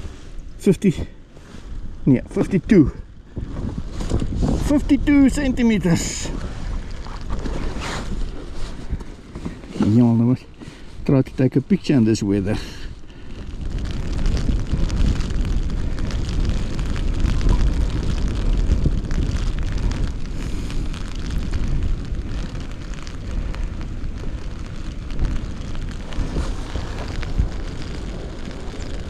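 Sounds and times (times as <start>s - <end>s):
light rain patter: 0.0s - 29.0s
wind buffeting microphone: 0.0s - 29.0s.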